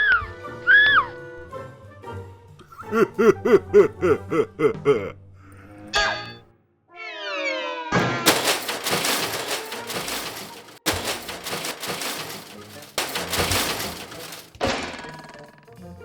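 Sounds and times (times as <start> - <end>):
crashing and shattering: 8.3 - 15.3.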